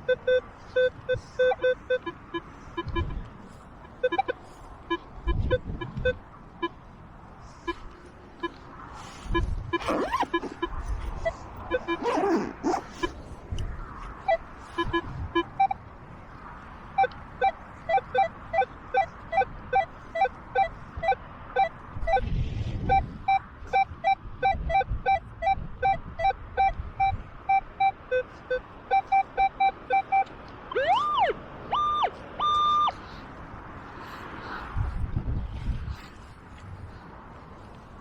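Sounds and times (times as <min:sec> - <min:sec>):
metal detector short beeps: 0:00.1 - 0:02.2, 0:04.0 - 0:06.2, 0:09.3 - 0:13.1, 0:17.4 - 0:22.3, 0:22.9 - 0:32.9
wind rumble on microphone: 0:00.2 - 0:27.5, 0:30.8 - 0:38.0
metal detector sweeping tone: 0:09.3 - 0:13.1, 0:27.8 - 0:32.9.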